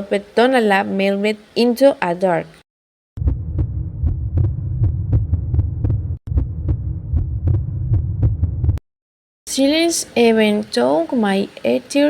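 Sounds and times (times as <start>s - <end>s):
low throbbing rumble: 3.2s - 8.8s.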